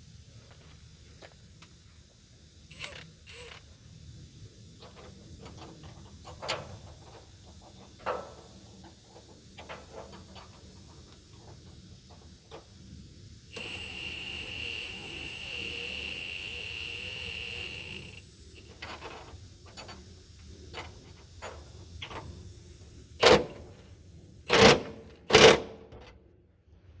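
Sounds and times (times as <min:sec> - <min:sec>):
power tool motor whining: 0:02.7 - 0:03.6, 0:13.5 - 0:18.7
small clicks of tools: 0:02.7 - 0:03.7.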